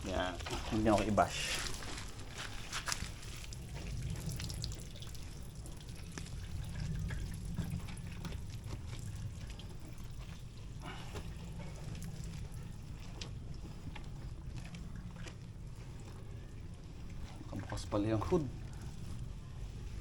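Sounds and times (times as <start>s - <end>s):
steady low rumble: 0.0s - 20.0s
water trickling and dripping: 0.0s - 20.0s.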